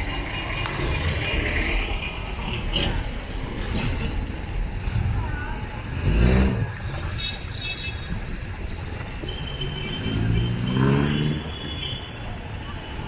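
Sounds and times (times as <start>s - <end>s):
low rumble of road noise: 0.0s - 13.0s
vehicle engine accelerating past: 10.0s - 11.4s.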